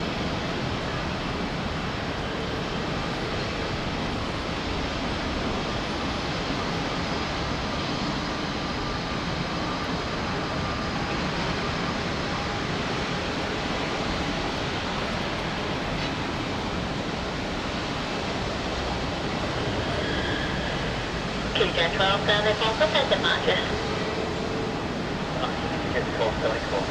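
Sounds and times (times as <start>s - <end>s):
jet aircraft noise: 0.1s - 26.9s
strong wind: 12.0s - 26.9s.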